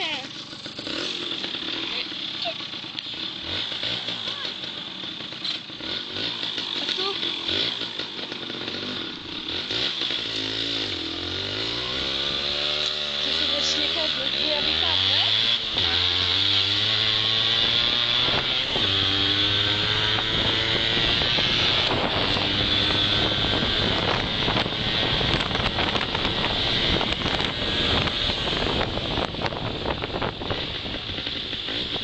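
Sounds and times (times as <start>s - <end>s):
motorcycle engine accelerating: 0.0s - 32.0s
road noise: 0.0s - 32.0s
wind on microphone: 17.6s - 32.0s.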